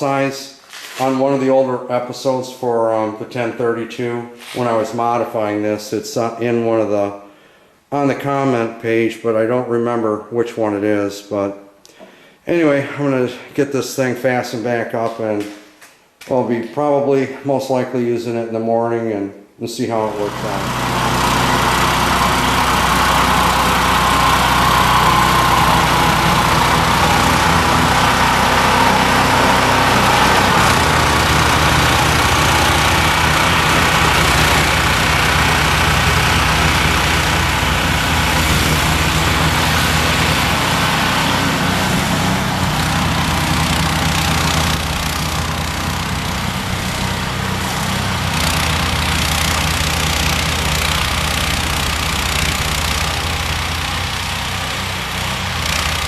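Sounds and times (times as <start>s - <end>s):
snowblower engine running: 20.0s - 56.0s.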